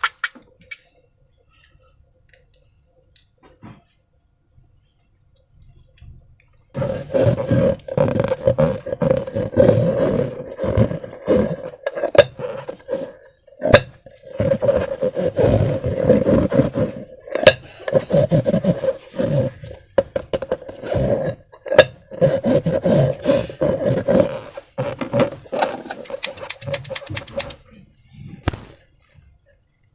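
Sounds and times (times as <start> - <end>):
slime squeaking and squelching: 0.0 - 0.9, 6.8 - 12.5, 22.2 - 27.6
sharp snapping clicks: 26.1 - 27.6.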